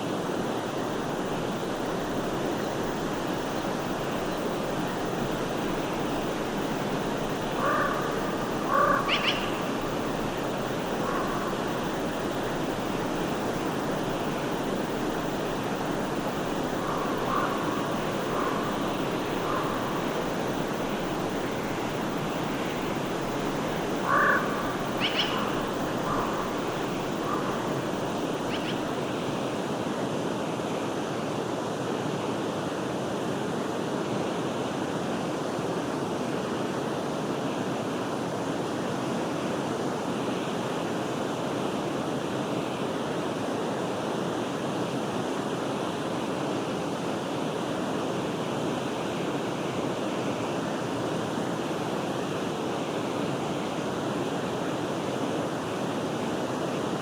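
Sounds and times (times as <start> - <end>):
stream flowing: 0.0 - 31.8
short animal calls: 7.6 - 9.7, 24.0 - 26.5.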